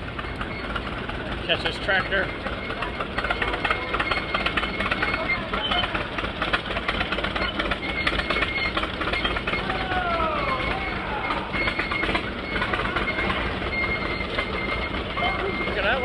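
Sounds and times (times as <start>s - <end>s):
tractor engine clattering: 0.0s - 16.0s.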